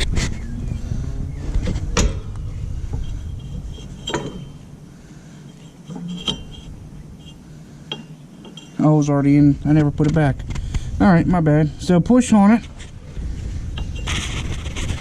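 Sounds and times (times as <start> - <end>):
low rumble: 0.0 - 7.8
metallic knocks and clinks: 2.0 - 9.1.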